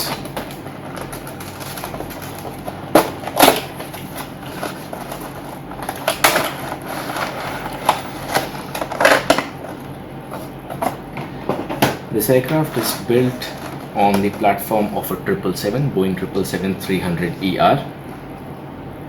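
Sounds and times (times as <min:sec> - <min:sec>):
packaging rustling and scraping: 0:00.0 - 0:15.0.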